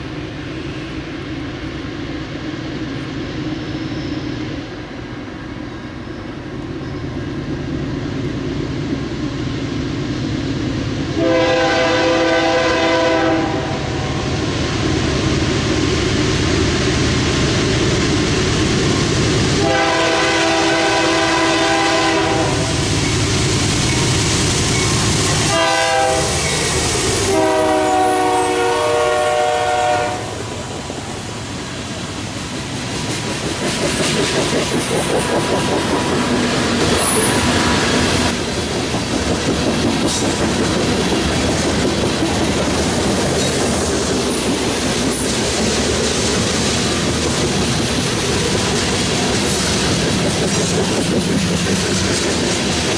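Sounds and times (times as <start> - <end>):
train rumbling past: 0.0 - 52.9
locomotive air horn blasts: 11.2 - 13.9, 19.6 - 22.8, 25.5 - 26.4, 27.2 - 30.5
wheels clattering on rails: 32.6 - 52.9.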